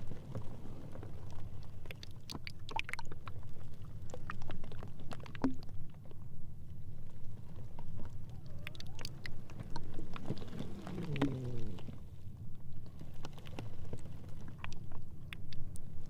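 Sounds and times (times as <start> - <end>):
ice floes rumbling: 3.4 - 16.0
ice ticks and cracks: 12.6 - 16.0.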